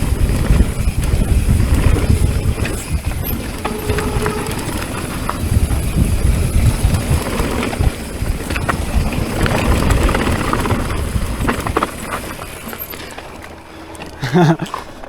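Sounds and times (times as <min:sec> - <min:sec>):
wind rumbling on microphone: 0:00.0 - 0:14.2
bike clattering over terrain: 0:00.0 - 0:15.0.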